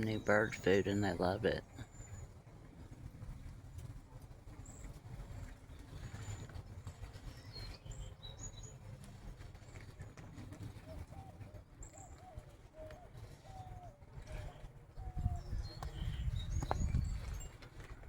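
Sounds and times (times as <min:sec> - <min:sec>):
steady low rumble: 0:00.0 - 0:18.0
small birds chirping: 0:04.5 - 0:17.9.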